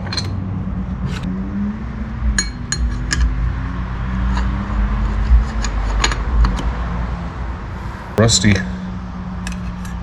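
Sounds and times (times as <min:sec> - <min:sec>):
metal parts clinking: 0:00.0 - 0:00.4
steady low hum: 0:00.0 - 0:10.0.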